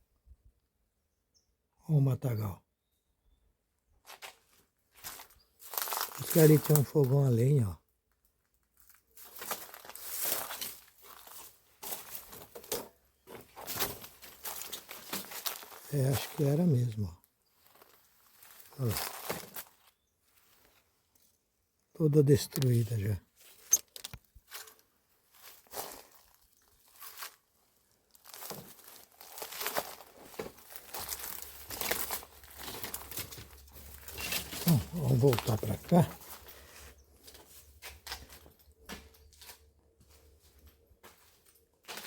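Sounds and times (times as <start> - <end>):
footsteps crunching through brush: 4.0 - 7.1, 8.6 - 21.0, 22.5 - 42.0.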